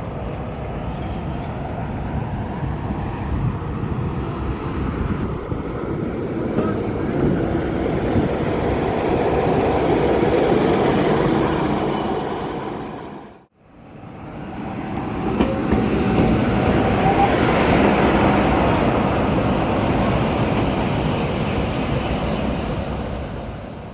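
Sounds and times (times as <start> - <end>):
train running rumble: 0.0 - 23.9.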